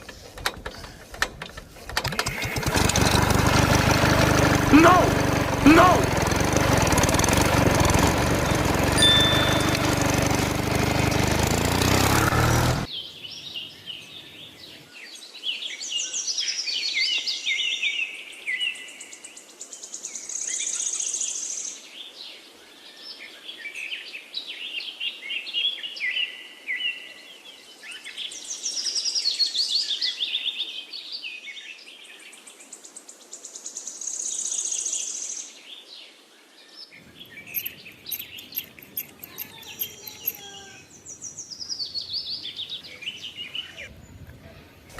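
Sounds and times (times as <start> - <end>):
toy diesel engine running: 0.0 - 12.9, 37.2 - 40.8
birds singing: 12.8 - 32.4, 34.5 - 44.9.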